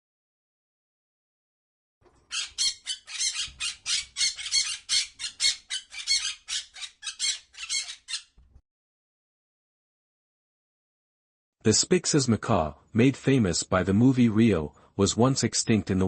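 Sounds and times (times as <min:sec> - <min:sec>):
bird squawking: 0:02.3 - 0:08.4.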